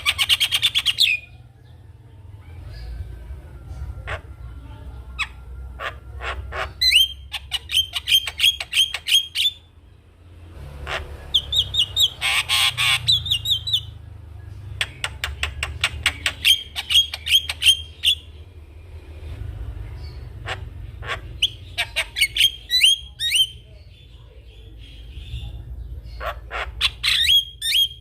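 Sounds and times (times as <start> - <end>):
bird singing sharp repeated notes: 5.2 - 9.7, 11.2 - 18.4, 20.0 - 28.0
harsh rasping bird call: 10.8 - 13.9.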